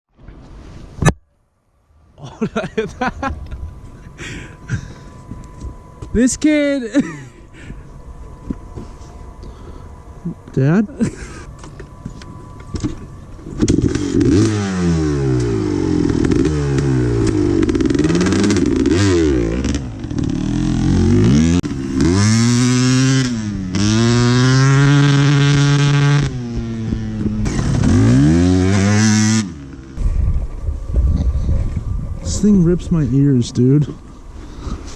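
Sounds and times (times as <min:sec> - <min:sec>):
two-stroke motorcycle engine revving: 0:13.6 - 0:30.0.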